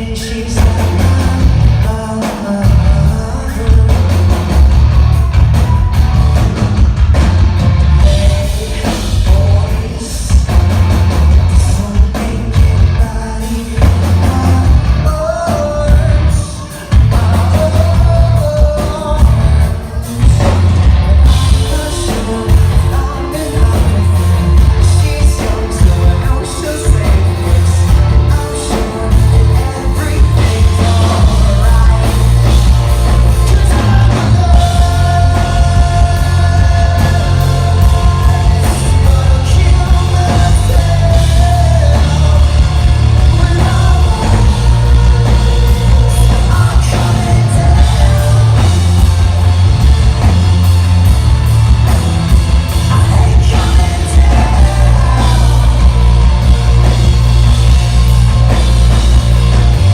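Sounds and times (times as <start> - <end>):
rock band playing live: 0.0 - 59.9
person singing long notes: 11.5 - 49.4.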